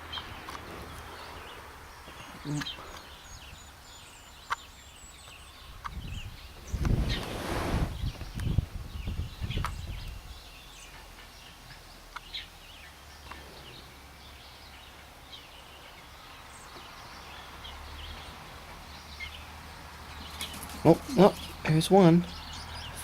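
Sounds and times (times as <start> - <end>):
small birds chirping: 0.0 - 23.0
low bumps: 5.9 - 10.2.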